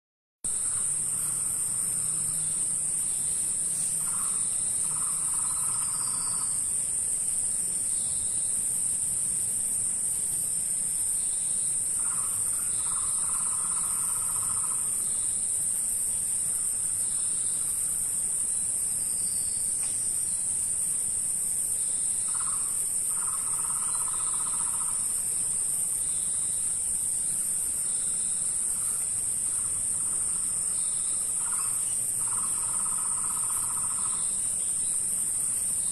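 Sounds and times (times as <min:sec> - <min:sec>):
insect chorus drone: 0:00.4 - 0:35.9
faint higher animal calls: 0:22.3 - 0:25.2.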